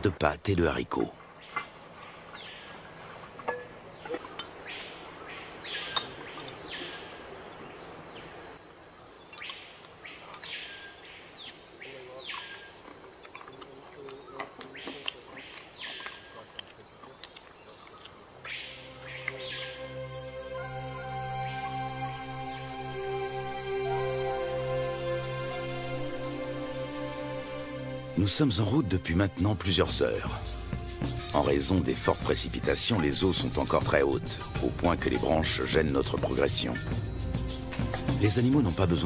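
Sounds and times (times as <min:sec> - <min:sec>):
insects humming: 0:00.0 - 0:39.0
bird whistled call: 0:18.5 - 0:19.9.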